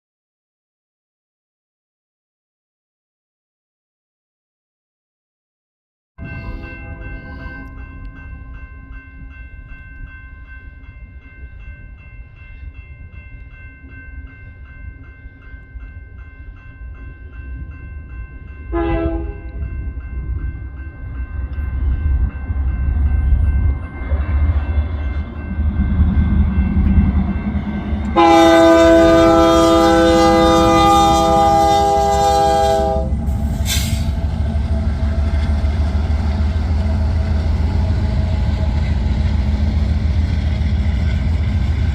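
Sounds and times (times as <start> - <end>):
locomotive horn: 6.2 - 7.7, 18.7 - 19.6, 27.8 - 34.2.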